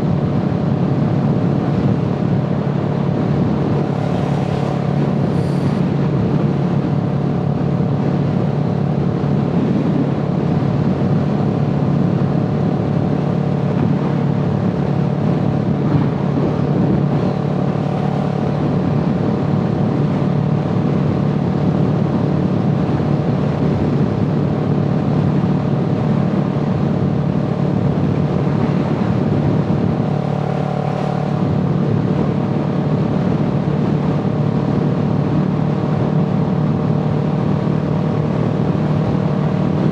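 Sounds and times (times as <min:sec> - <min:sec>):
vehicle engine droning: 0:00.0 - 0:39.9.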